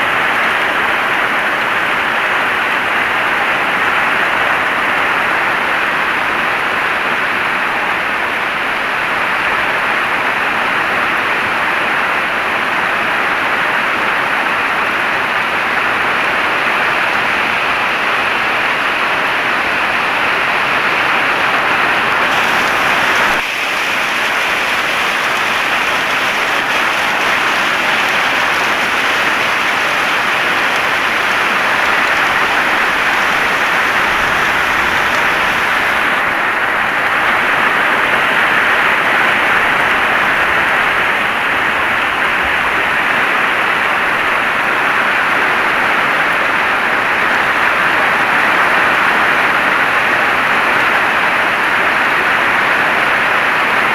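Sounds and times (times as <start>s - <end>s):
heavy rain hissing: 15.0s - 43.1s.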